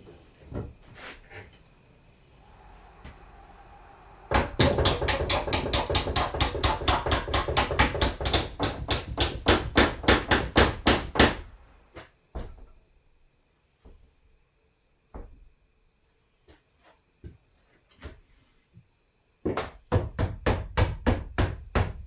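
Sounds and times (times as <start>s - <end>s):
hammer blows: 2.4s - 11.5s.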